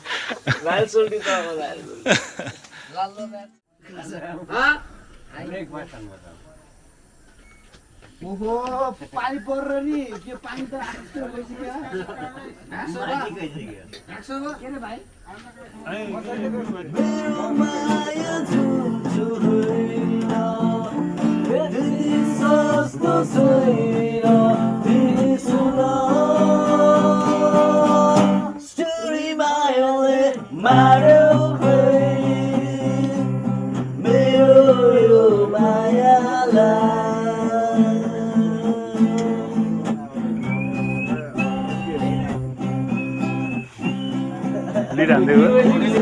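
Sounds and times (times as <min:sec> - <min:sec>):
acoustic guitar strummed: 0:16.2 - 0:46.0
person singing: 0:16.9 - 0:40.0.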